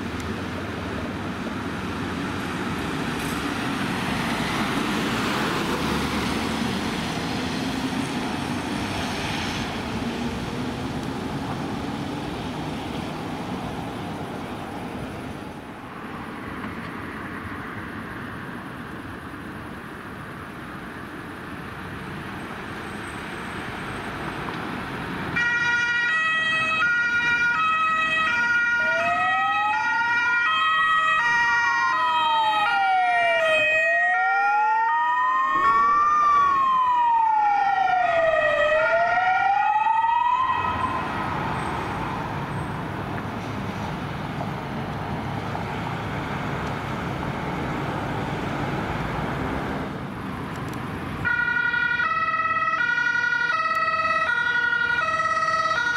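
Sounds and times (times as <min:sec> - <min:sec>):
traffic noise: 0:00.0 - 0:55.9
two-tone siren: 0:25.4 - 0:41.8, 0:51.2 - 0:55.9
wailing siren: 0:25.4 - 0:42.5, 0:51.2 - 0:55.9.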